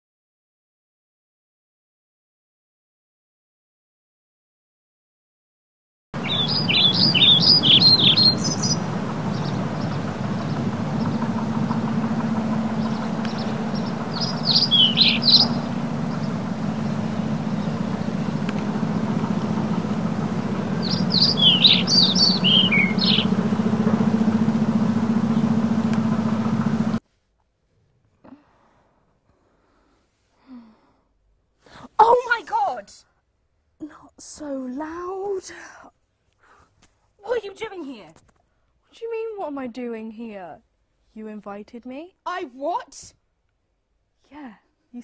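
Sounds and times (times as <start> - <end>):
songbird chirping: 6.2 - 27.0
steady low hum: 6.2 - 27.0.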